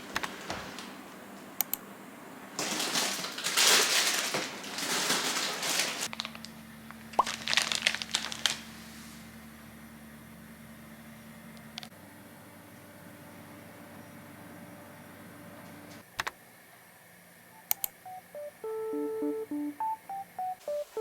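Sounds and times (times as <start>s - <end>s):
steady electric hum: 0.8s - 16.0s, 17.4s - 21.0s
packaging crinkling and rustling: 2.6s - 8.9s.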